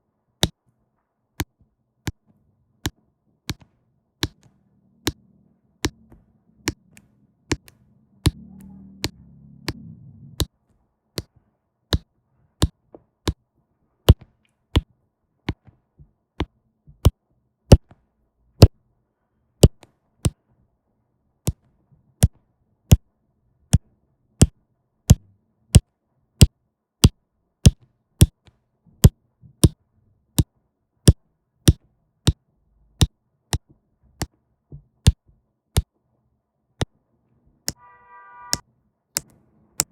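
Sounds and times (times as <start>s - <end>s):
faint low hum: 1.7s - 12.6s
pen tapping on canvas: 29.0s - 29.8s.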